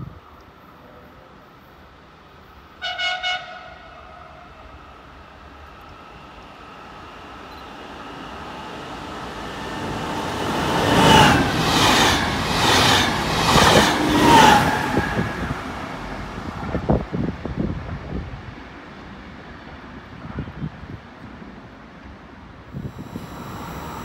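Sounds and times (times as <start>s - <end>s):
train passing with whooshes: 3.8s - 18.1s.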